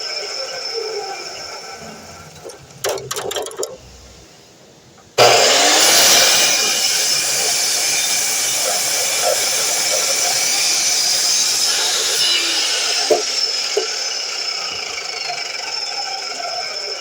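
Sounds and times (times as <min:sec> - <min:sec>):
handling clicks and rattles: 0:02.3 - 0:03.8
miter saw motor running: 0:05.2 - 0:17.0.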